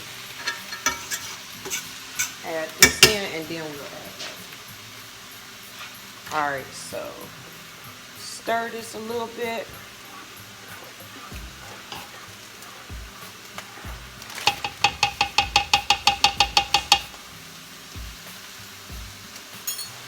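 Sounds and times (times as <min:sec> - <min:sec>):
metal utensil clinking in pan: 0:00.3 - 0:03.5, 0:14.3 - 0:17.2, 0:19.6 - 0:20.0.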